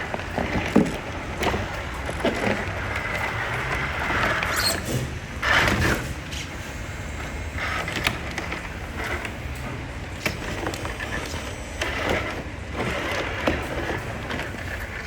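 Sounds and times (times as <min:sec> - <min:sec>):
tyres scrabbling: 0:00.0 - 0:06.6.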